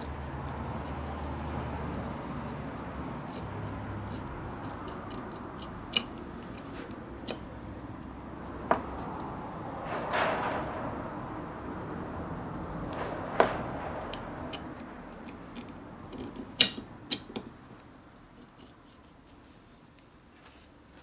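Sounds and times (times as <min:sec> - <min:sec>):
sharp clicks and knocks: 0:06.9 - 0:19.2
rustling scrape: 0:09.0 - 0:11.9, 0:12.6 - 0:15.5.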